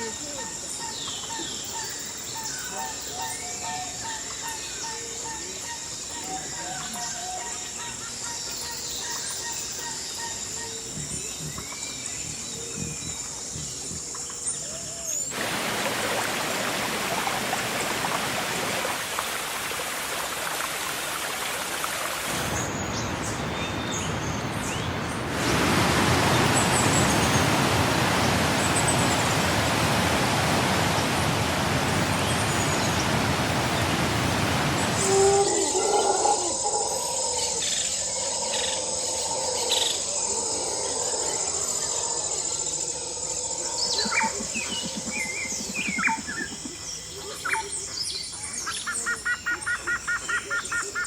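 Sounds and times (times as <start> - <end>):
rushing hiss of rain: 11.2 - 36.8.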